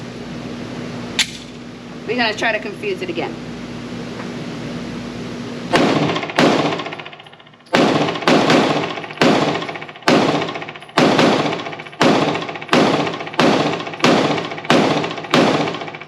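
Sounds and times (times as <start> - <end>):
pistol shots echoing indoors: 5.7 - 16.0.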